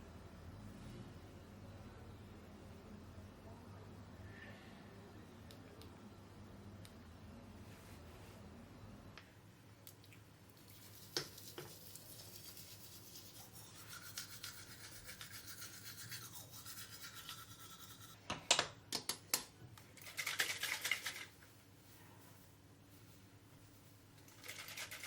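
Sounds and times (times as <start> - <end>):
bristle brush scrubbing: 10.6 - 18.2.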